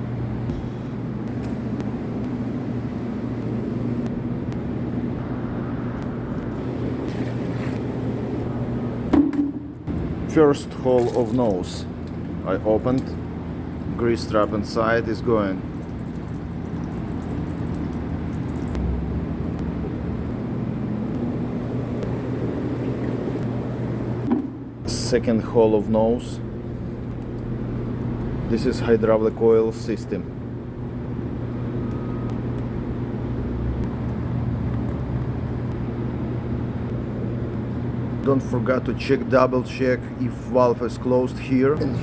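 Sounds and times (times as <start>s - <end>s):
truck engine humming: 15.7s - 24.8s.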